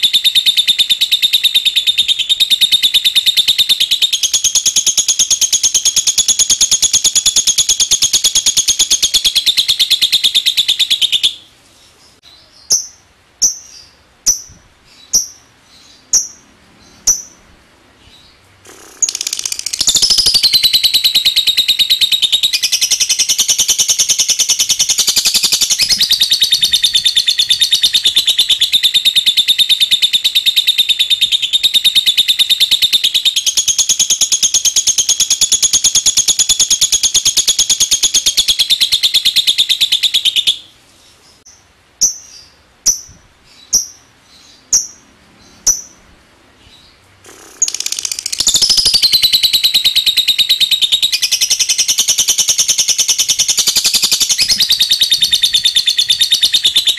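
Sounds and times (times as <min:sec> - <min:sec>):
lovebird rapid chatter: 0:18.6 - 0:29.0, 0:47.2 - 0:56.9.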